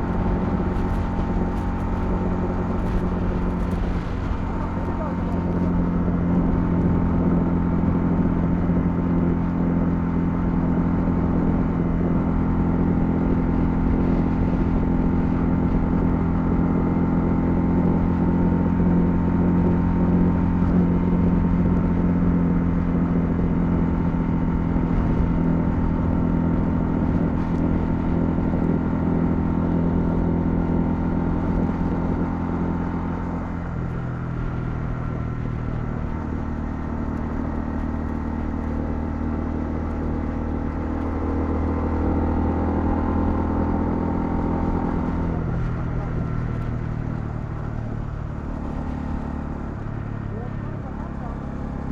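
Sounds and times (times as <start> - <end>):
motorcycle engine cruising: 0.0 - 51.9
road and wind noise: 0.0 - 51.9.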